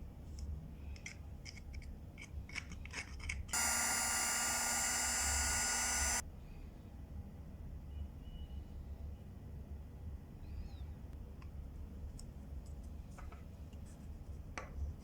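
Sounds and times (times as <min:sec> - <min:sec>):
electric motor tool whining: 0:03.6 - 0:06.2.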